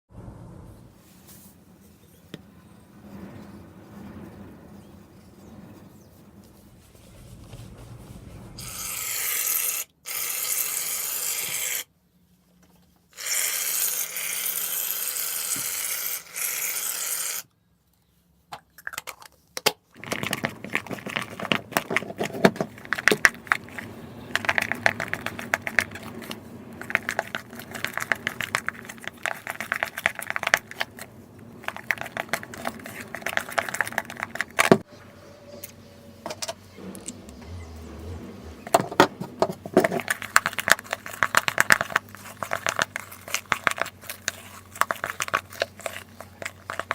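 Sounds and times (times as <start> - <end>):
slime stirred in a bowl: 20.0 - 34.8, 38.8 - 46.9.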